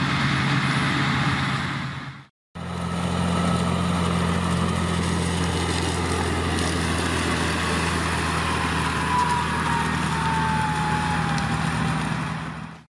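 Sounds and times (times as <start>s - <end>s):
harvester engine humming: 0.0s - 12.9s.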